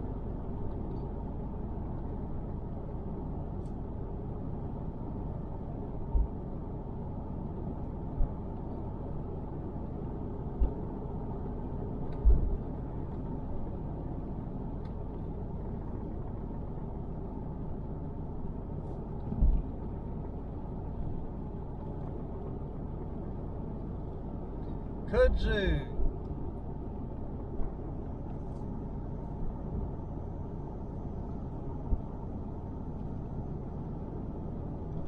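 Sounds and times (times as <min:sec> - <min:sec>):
car road noise rumble: 0:00.0 - 0:35.0.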